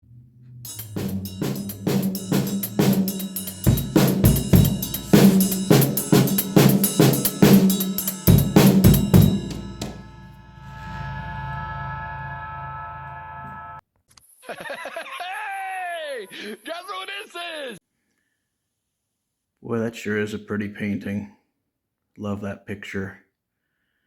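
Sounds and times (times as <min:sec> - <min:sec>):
bass line: 0:00.0 - 0:13.8
drum kit beat: 0:00.7 - 0:10.4.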